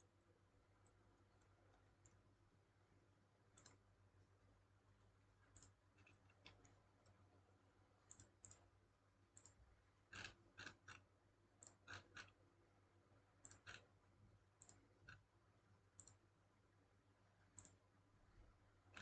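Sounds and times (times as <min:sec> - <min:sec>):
low steady hum: 0:00.0 - 0:19.0
faint computer mouse clicks: 0:03.5 - 0:03.8, 0:05.5 - 0:07.2, 0:08.0 - 0:08.7, 0:09.3 - 0:12.4, 0:13.4 - 0:13.9, 0:14.6 - 0:15.2, 0:16.0 - 0:16.2, 0:17.5 - 0:17.8.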